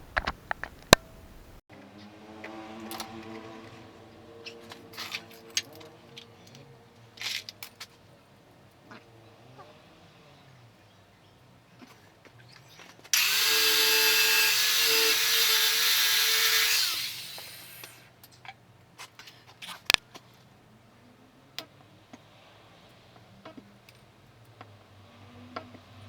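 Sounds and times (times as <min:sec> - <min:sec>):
power tool running: 0:13.2 - 0:18.0.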